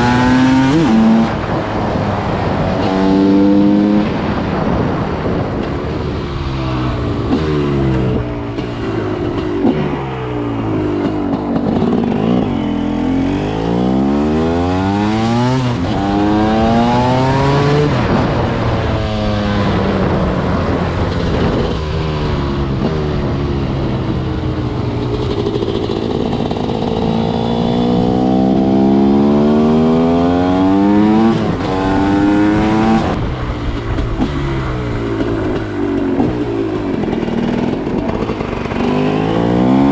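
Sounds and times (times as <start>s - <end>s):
two-stroke engine revving through gears: 0.0s - 1.5s, 7.3s - 18.2s, 35.1s - 39.9s.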